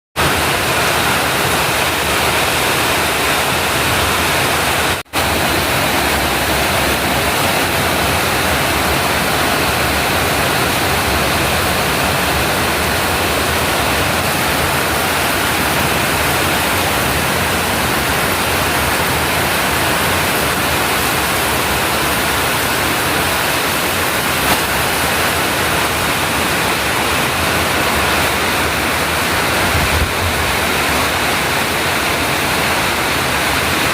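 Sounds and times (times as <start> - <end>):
heavy rain with strong wind: 0.2 - 33.9.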